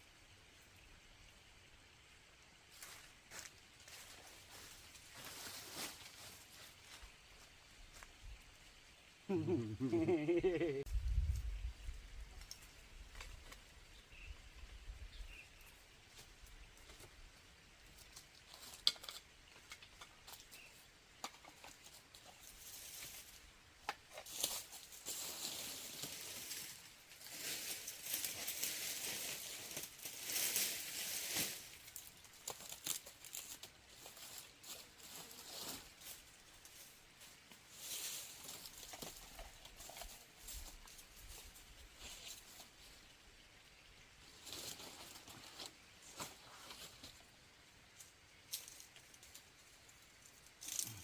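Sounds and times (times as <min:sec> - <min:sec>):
rustling and crinkling: 0:02.7 - 0:08.2, 0:17.9 - 0:43.1, 0:44.2 - 0:51.0.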